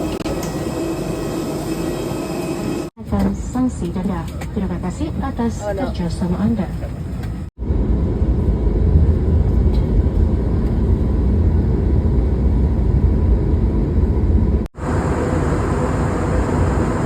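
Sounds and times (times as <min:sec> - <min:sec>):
vehicle rumbling in motion: 0:06.7 - 0:17.0.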